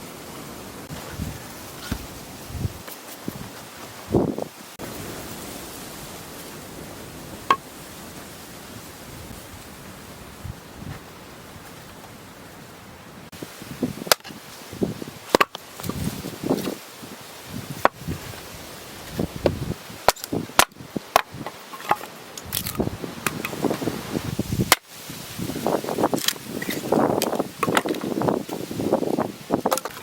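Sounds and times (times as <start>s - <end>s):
rustling handling noise: 0.9s - 4.8s.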